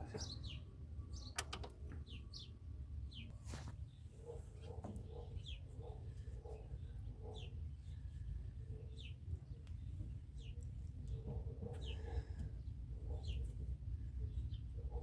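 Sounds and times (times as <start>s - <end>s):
bird chirping: 0.0s - 3.4s.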